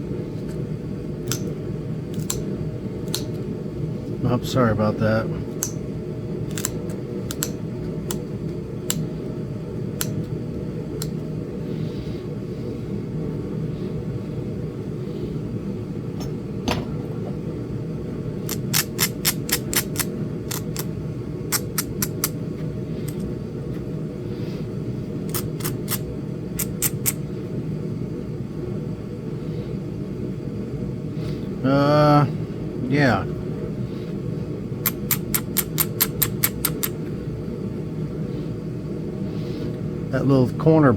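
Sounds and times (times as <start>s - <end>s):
stone flakes clicking off: 2.1s - 2.4s, 6.5s - 8.2s, 18.5s - 20.9s, 34.9s - 37.0s.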